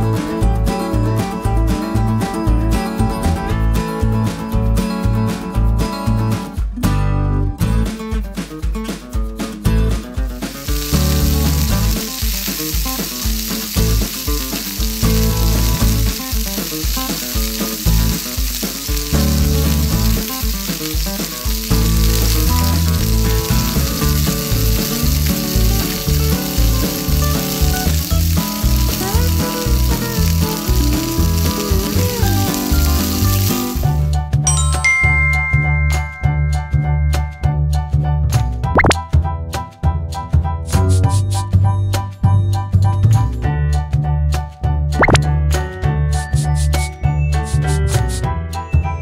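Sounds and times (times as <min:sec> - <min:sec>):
background music: 0:00.0 - 0:49.0
hot oil sizzling: 0:09.9 - 0:37.3.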